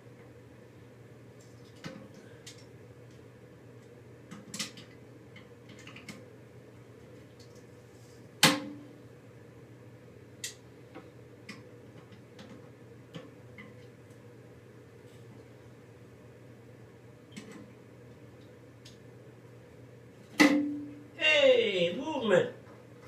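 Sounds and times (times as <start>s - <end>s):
steady low hum: 0.0s - 23.0s
clicks and knocks of plumbing parts: 4.3s - 6.2s, 10.4s - 13.9s.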